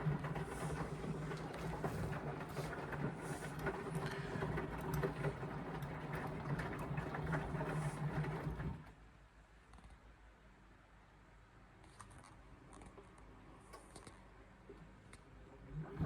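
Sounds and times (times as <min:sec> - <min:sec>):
washing machine motor humming: 0:00.0 - 0:08.9, 0:15.6 - 0:16.0
wet laundry sloshing: 0:00.0 - 0:08.9.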